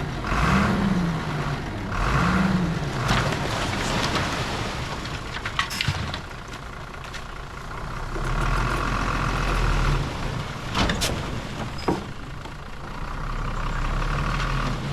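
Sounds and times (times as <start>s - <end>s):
heavy machinery diesel engine: 0.0s - 14.9s.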